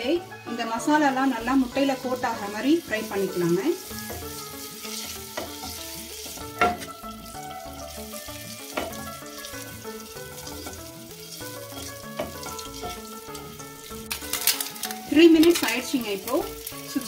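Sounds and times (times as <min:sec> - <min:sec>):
background music: 0:00.0 - 0:17.0
eggs sizzling in pan: 0:00.0 - 0:17.0
wooden spatula knocking on pan: 0:05.3 - 0:07.0, 0:08.7 - 0:09.2, 0:12.0 - 0:13.0.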